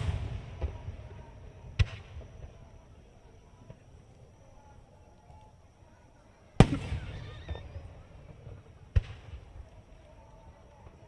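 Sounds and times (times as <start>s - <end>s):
firework shells bursting: 0.0s - 2.8s.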